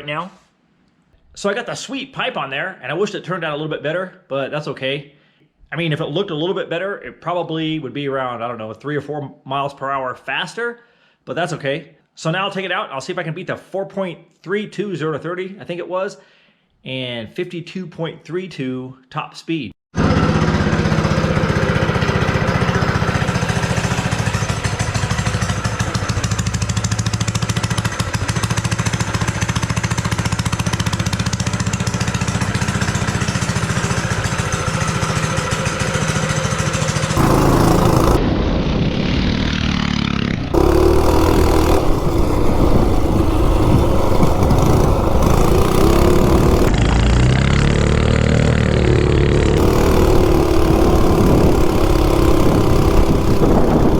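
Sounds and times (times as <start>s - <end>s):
minibike engine running: 20.0s - 38.2s, 40.6s - 53.9s.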